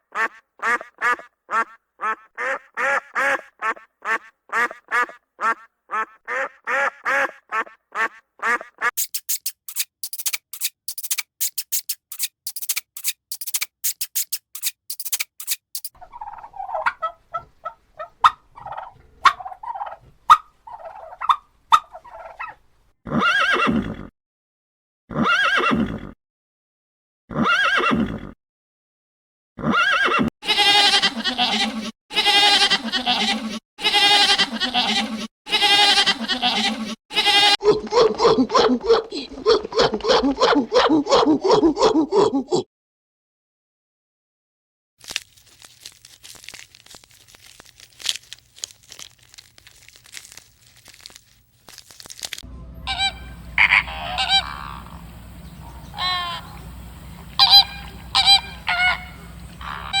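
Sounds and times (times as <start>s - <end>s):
farm fowl calling: 0.1s - 8.9s, 16.0s - 22.6s, 52.9s - 60.0s
goat bleating: 30.4s - 37.6s, 52.9s - 54.9s, 55.9s - 56.6s, 57.4s - 60.0s
faint clicks and rustles: 45.1s - 52.4s
low background rumble: 52.5s - 60.0s.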